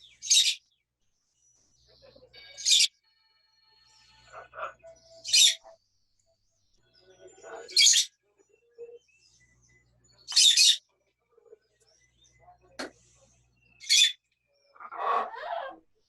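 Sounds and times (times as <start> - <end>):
parrot chirps and chatter: 0.0 - 0.6, 1.8 - 2.9, 3.7 - 5.8, 7.0 - 9.1, 10.1 - 15.9
parrot harsh calls: 4.3 - 5.6, 14.8 - 15.8.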